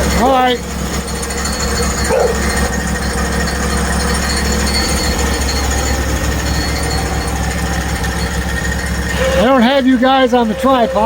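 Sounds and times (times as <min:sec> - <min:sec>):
gas engine running steadily: 0:00.0 - 0:11.0.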